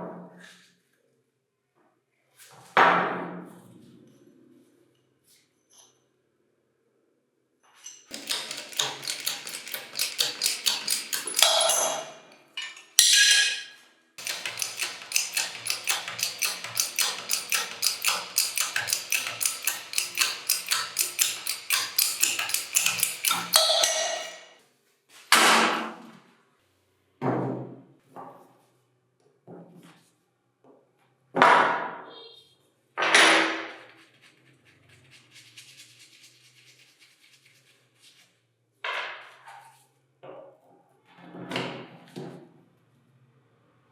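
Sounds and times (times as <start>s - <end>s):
hammer tapping on metal: 8.1s - 12.3s, 14.2s - 24.5s.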